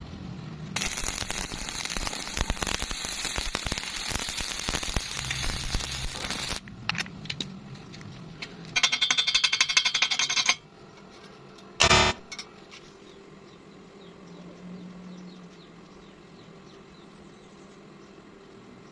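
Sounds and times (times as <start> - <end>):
arc welding crackling: 0.8 - 6.7.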